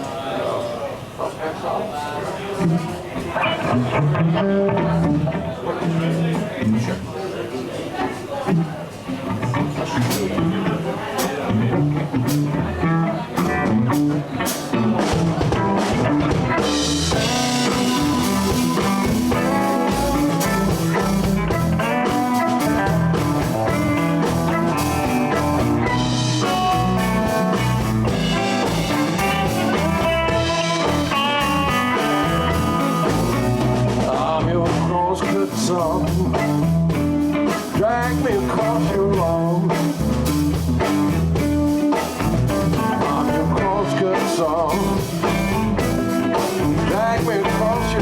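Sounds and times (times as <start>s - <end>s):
guitar: 0.0s - 48.0s
bass: 2.6s - 7.1s, 8.5s - 48.0s
drum kit: 8.5s - 48.0s
sustained melodic lead line: 14.8s - 48.0s.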